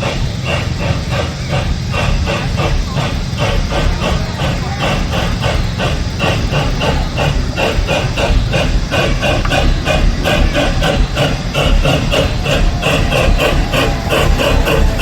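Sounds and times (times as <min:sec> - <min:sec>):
steam locomotive chuffing: 0:00.0 - 0:15.0
train rumbling: 0:00.0 - 0:15.0.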